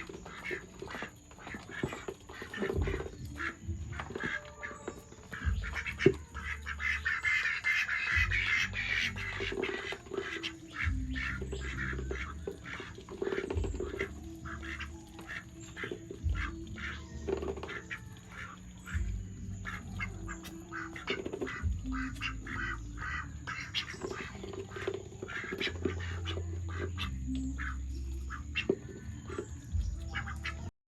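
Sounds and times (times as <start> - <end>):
ducks quacking: 0.0 - 30.7
low rumble: 18.7 - 20.7, 21.6 - 23.5.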